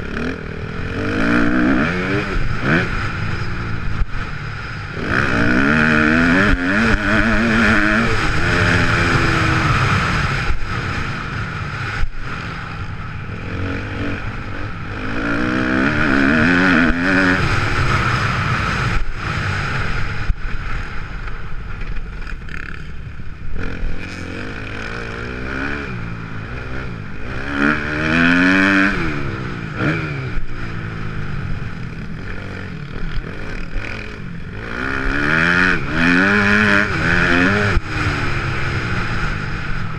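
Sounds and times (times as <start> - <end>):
motorbike engine revving: 0.0 - 20.4, 23.5 - 39.9.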